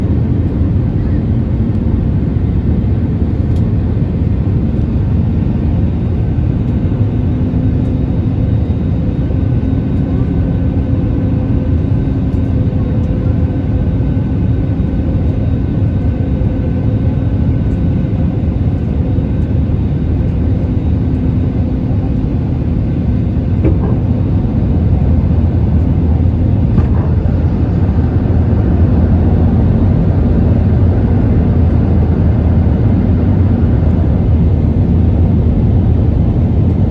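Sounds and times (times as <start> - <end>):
airplane cabin roar: 0.0 - 36.9.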